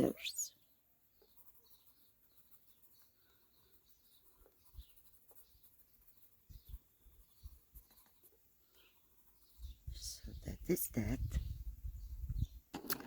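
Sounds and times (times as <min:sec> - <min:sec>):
birds chirping: 0:00.0 - 0:13.0
pencil scratching paper: 0:01.2 - 0:09.8.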